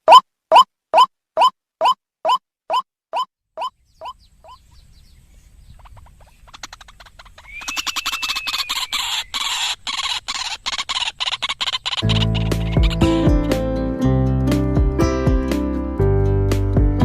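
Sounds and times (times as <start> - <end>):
recorded bird calls: 0.1 - 13.3.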